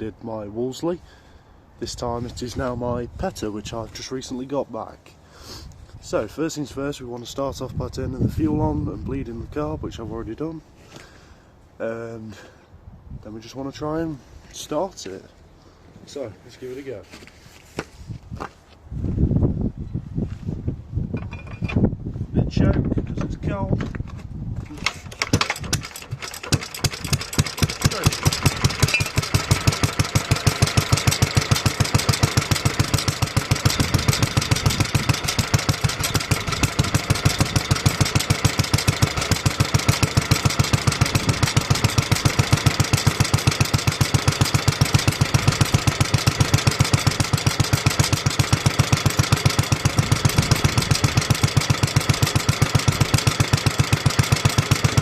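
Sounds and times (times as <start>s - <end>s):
stationary engine running: 24.8s - 55.0s.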